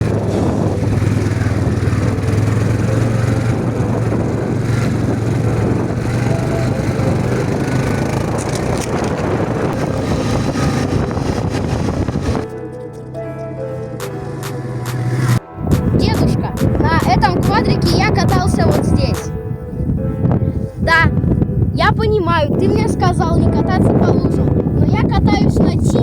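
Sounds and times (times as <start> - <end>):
quad bike engine running: 0.0 - 13.2, 13.9 - 19.2.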